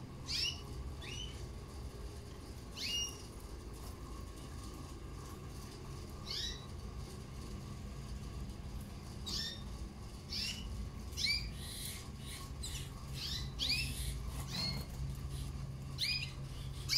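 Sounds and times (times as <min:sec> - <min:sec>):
canaries chirping: 0:00.2 - 0:01.5, 0:02.7 - 0:03.4, 0:06.2 - 0:06.8, 0:09.2 - 0:16.9.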